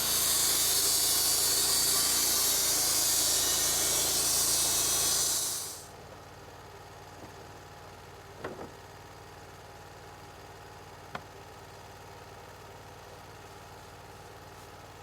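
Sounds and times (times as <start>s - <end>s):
sawmill cutting a board: 0.0s - 5.9s.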